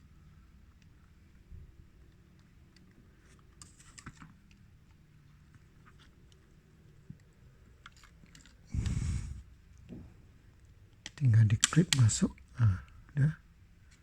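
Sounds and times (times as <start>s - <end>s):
small plastic clicks and taps: 11.0s - 12.5s.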